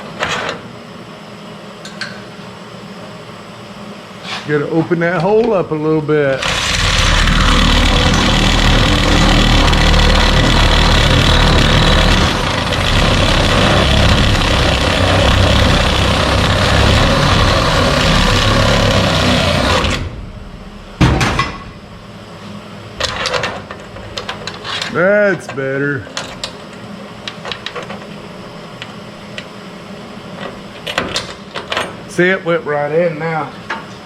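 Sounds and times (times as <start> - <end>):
power tool cutting metal: 6.4 - 20.2.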